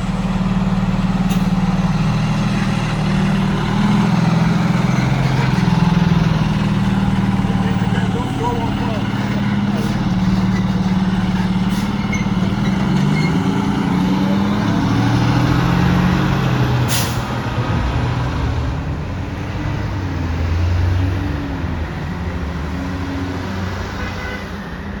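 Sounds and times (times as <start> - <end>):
diesel engine of fire truck: 0.0 - 25.0
air brake hiss: 16.9 - 17.3.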